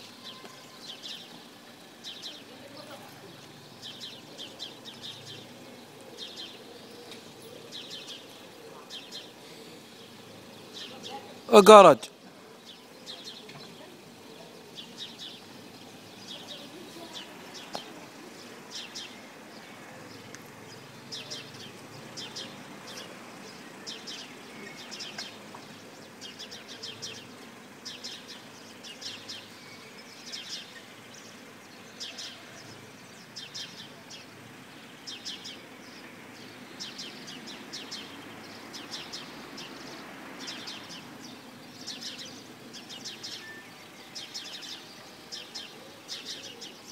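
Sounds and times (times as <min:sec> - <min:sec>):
small birds chirping: 0:00.0 - 0:11.5, 0:12.4 - 0:46.9.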